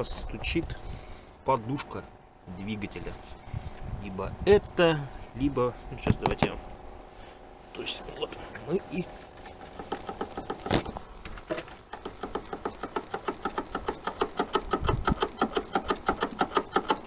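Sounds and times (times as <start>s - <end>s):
engine ticking knock: 11.9s - 17.0s.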